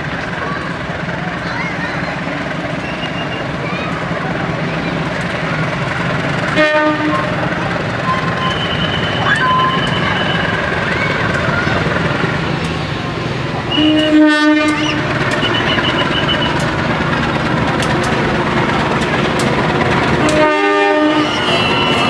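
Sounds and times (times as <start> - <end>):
train rumbling past: 0.0 - 22.0
locomotive horn blasts: 6.6 - 7.4, 13.7 - 16.5, 20.2 - 22.0.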